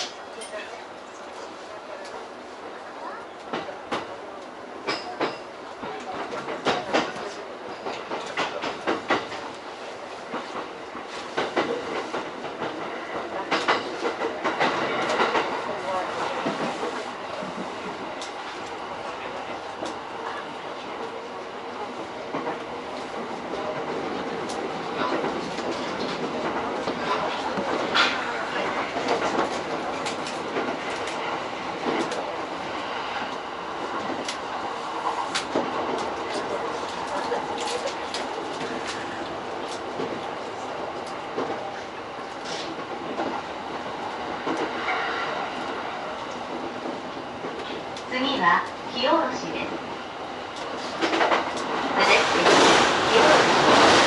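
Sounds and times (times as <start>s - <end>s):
train running rumble: 0.0s - 54.0s
train wheels clicking over joints: 4.8s - 20.4s, 50.4s - 54.0s.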